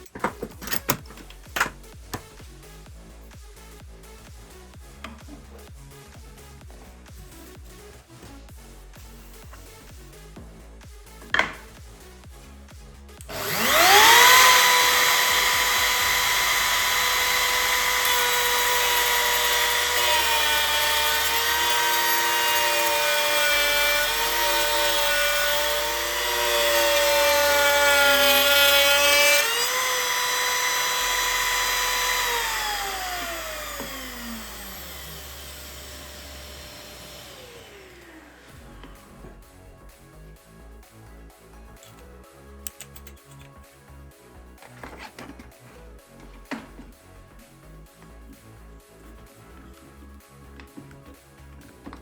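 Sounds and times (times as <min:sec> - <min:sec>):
electric router cutting wood: 0:13.2 - 0:38.7.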